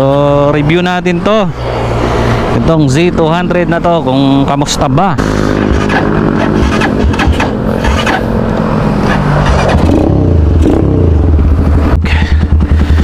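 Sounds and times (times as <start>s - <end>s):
motorbike engine idling: 11.1s - 13.0s.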